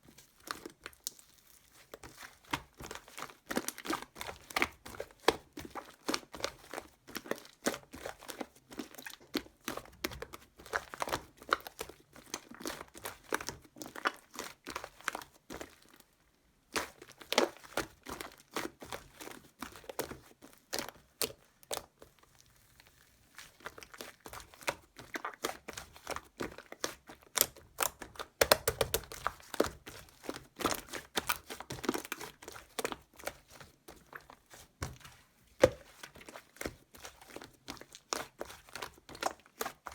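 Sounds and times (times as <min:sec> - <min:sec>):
slime crinkling and crackling: 0:00.0 - 0:39.9.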